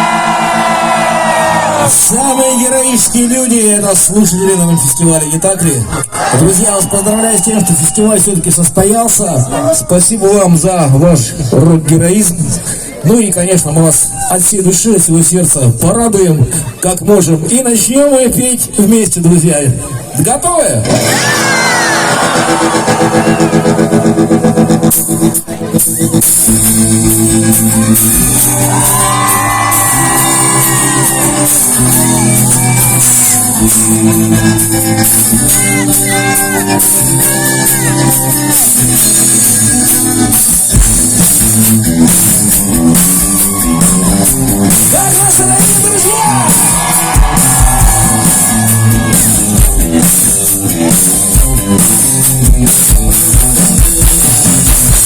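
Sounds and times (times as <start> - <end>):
audience shouting and whooping: 0.0 - 3.0, 3.8 - 8.4, 20.9 - 24.4, 27.7 - 38.5, 42.5 - 50.0
rock band playing live: 0.0 - 13.0, 19.9 - 55.0
drum kit beat: 22.1 - 55.0.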